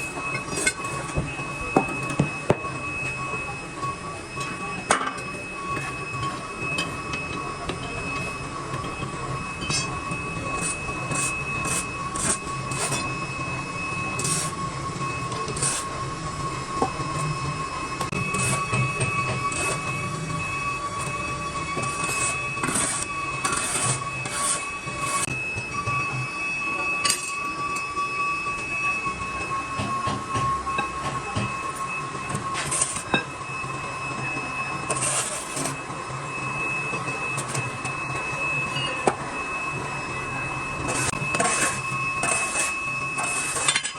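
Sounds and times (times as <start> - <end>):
machinery high-pitched whine: 0.0 - 43.9
machinery low hum: 0.0 - 43.9.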